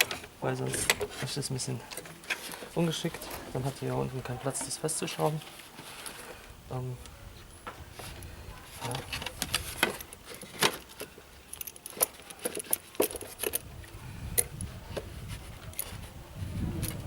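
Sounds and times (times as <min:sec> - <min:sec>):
metallic clinks of tools and clamps: 0:10.1 - 0:13.6.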